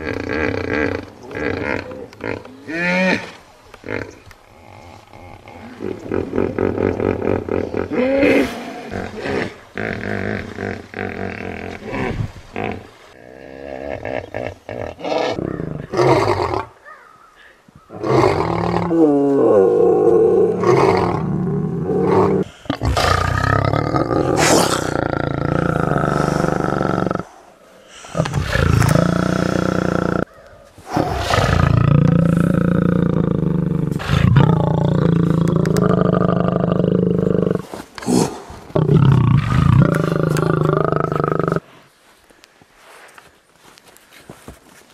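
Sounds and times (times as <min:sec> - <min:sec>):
lioness roaring: 0:18.0 - 0:27.3, 0:28.2 - 0:30.3, 0:31.0 - 0:37.6, 0:38.8 - 0:41.6.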